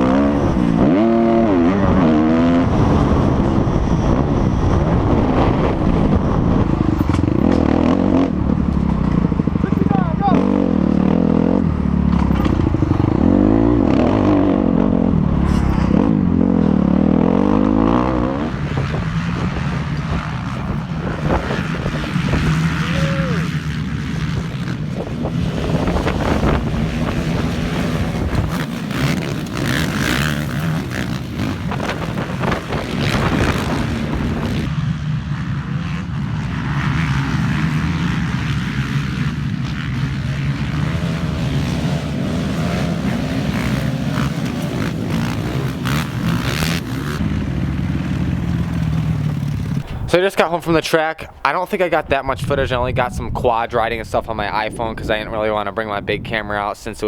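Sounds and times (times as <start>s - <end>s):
dirt bike engine revving: 0.0s - 51.6s
knocks and rattles of bike: 6.6s - 14.4s, 18.4s - 50.1s.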